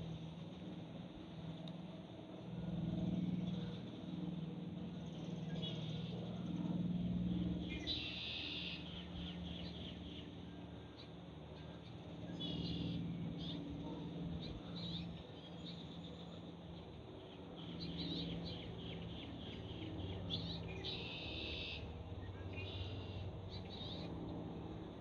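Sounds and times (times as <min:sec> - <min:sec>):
low steady hum: 0:00.0 - 0:25.0
small birds chirping: 0:14.4 - 0:24.1.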